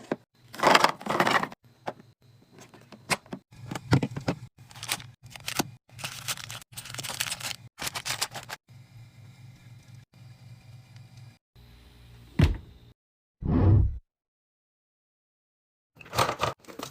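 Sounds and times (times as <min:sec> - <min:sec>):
items set down knocking: 0:00.0 - 0:04.5
plastic packaging crinkling: 0:04.6 - 0:08.6.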